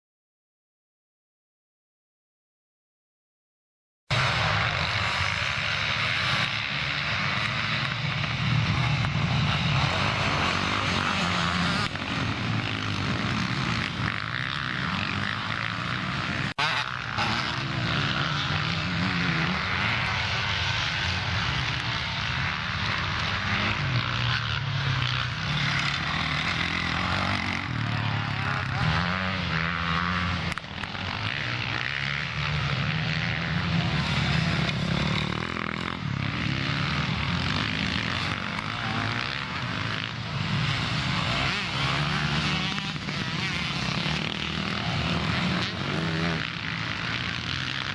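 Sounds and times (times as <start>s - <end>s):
motocross bike engines revving: 4.1s - 47.9s.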